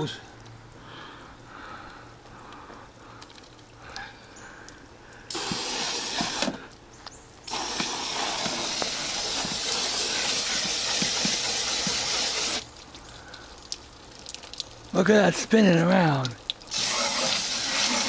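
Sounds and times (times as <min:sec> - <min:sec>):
hose spraying water on metal fins: 0:05.3 - 0:06.6, 0:07.5 - 0:12.7, 0:16.7 - 0:18.0.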